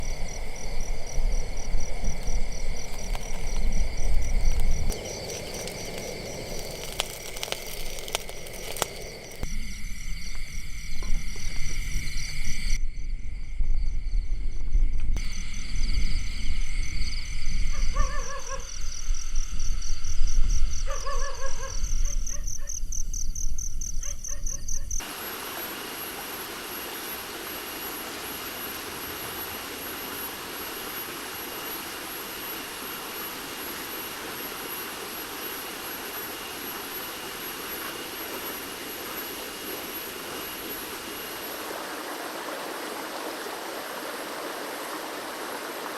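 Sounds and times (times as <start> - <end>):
insect whine: 0.0 - 45.9
high-pitched pulsing chirr: 25.0 - 45.5
stream rushing: 25.0 - 45.9.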